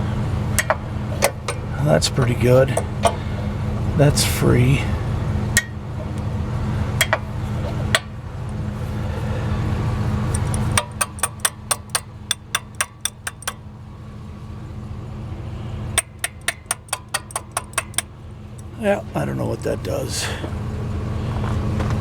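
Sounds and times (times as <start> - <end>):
sharp mechanical clicks: 10.3 - 13.6.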